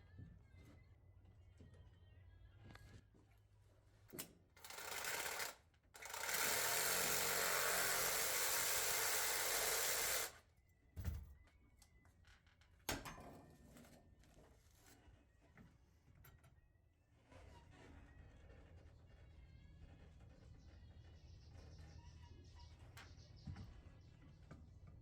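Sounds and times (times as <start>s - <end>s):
power tool running: 4.6s - 10.4s.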